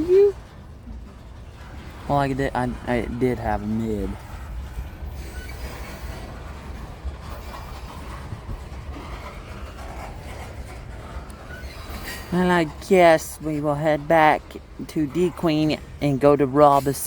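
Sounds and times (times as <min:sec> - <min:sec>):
freight train rumbling: 0:00.0 - 0:17.0
faint wheel squeal: 0:04.7 - 0:06.4, 0:11.1 - 0:12.4.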